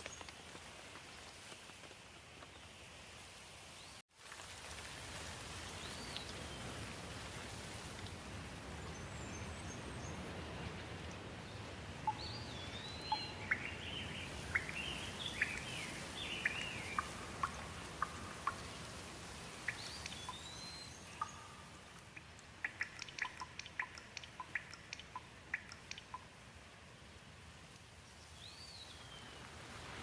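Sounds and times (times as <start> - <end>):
steady rain: 0.0 - 30.0
birds chirping: 9.0 - 18.9, 19.6 - 26.2.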